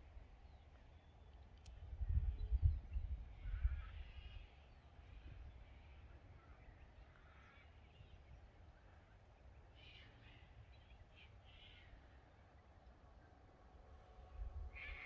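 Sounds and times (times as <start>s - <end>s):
faint bird calls: 9.7s - 12.2s, 14.7s - 15.0s.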